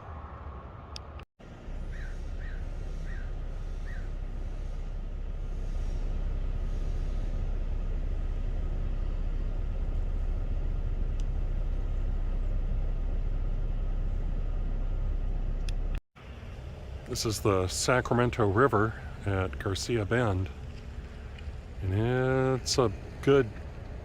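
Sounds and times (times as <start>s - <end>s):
vehicle road noise rumble: 0.0s - 24.0s
bird calling: 1.5s - 7.5s.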